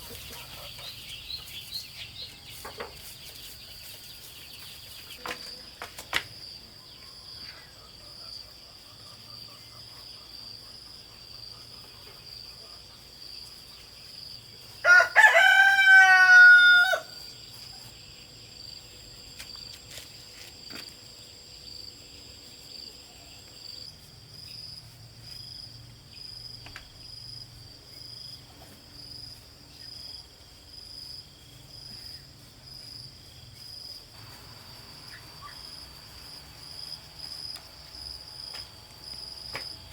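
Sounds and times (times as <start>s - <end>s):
high insect trill: 13.2s - 39.9s
rooster crowing: 14.8s - 17.3s.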